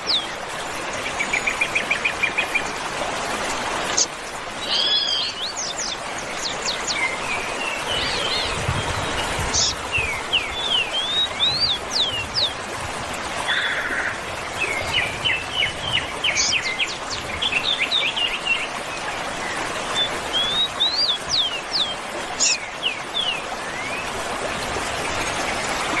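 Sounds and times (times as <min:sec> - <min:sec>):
birds singing and chirping: 0:00.0 - 0:00.4, 0:03.9 - 0:12.6, 0:13.4 - 0:24.2.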